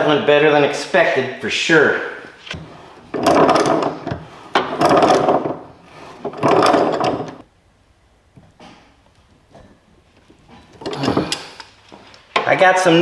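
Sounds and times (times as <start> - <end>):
scraping rubbing strokes: 2.3 - 7.5.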